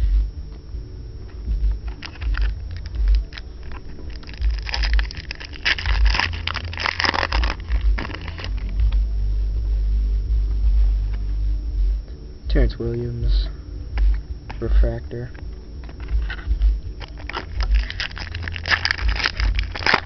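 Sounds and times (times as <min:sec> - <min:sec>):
steady low rumble: 0:00.0 - 0:20.0
cards clicking and scraping: 0:01.8 - 0:08.8, 0:15.3 - 0:20.0
foil packs crinkling: 0:01.8 - 0:08.8, 0:15.3 - 0:20.0.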